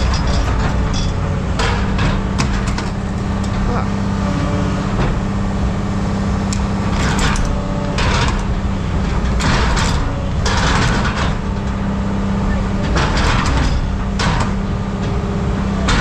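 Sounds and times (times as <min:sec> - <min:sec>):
heavy machinery humming: 0:00.0 - 0:16.0
scrap metal scraping and rattling: 0:00.0 - 0:16.0.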